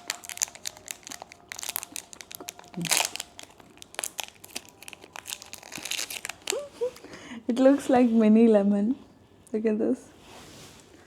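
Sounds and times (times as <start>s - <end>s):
candy wrapper crinkling: 0.0s - 7.1s.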